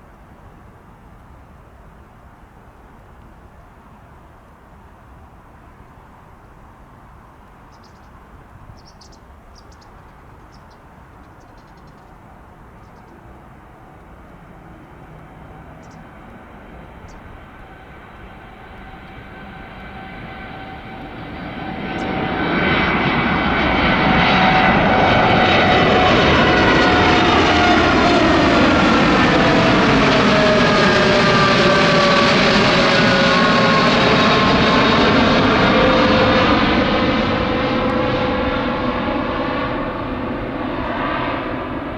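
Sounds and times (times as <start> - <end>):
jet engines rumbling: 9.4 - 41.9.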